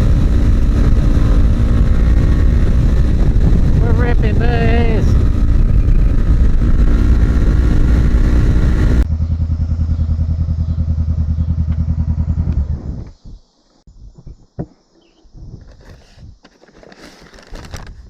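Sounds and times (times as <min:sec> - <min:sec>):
wind on microphone: 0:00.0 - 0:09.1, 0:15.2 - 0:16.5, 0:17.4 - 0:18.0
pulsing engine note: 0:00.0 - 0:13.0
motorcycle engine accelerating: 0:00.0 - 0:13.4.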